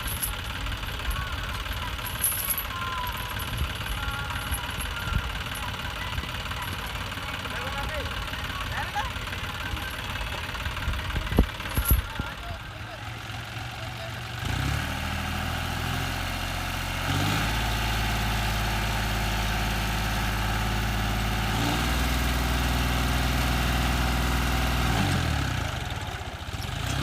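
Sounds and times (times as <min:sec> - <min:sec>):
diesel engine revving: 0:00.0 - 0:27.0.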